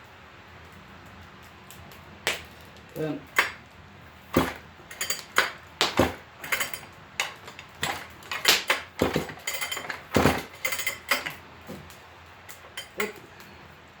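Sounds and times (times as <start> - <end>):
metallic clanks and knocks: 4.3 - 13.2.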